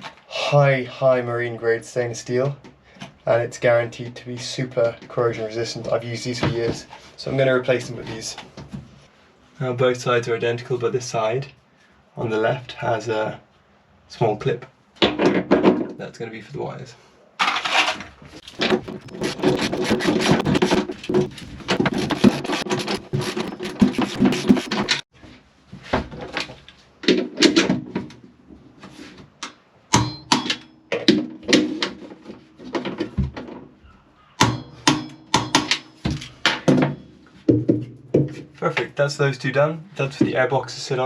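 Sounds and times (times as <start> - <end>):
rapid clicking and scraping: 17.4 - 25.1
metallic knocks: 29.9 - 31.8, 34.4 - 38.4.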